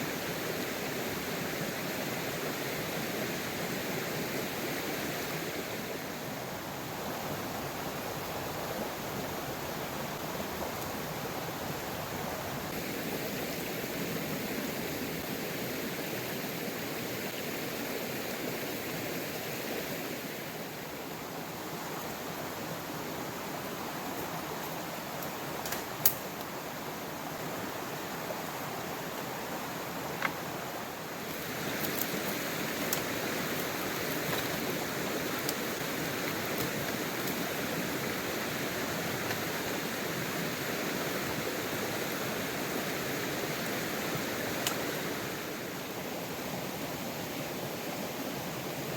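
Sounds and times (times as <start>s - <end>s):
stream water rushing: 0.0s - 48.9s.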